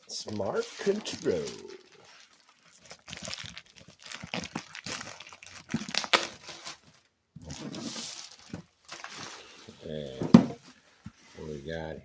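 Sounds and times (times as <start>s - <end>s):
packaging rustling: 0.4s - 9.8s
cardboard packaging cracking: 0.7s - 9.2s.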